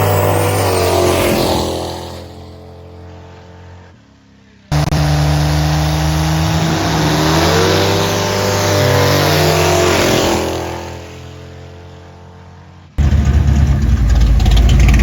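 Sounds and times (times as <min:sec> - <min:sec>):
motor vehicle engine running: 0:12.0 - 0:15.0.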